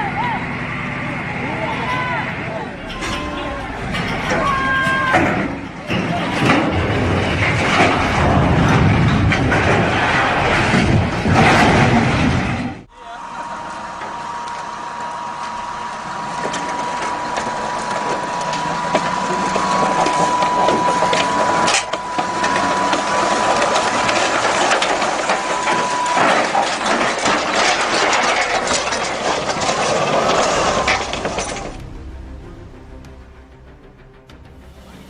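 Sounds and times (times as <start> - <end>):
high whine: 0.0 - 5.9, 12.9 - 35.0
machinery clattering and crunching: 0.4 - 12.9, 13.5 - 33.4.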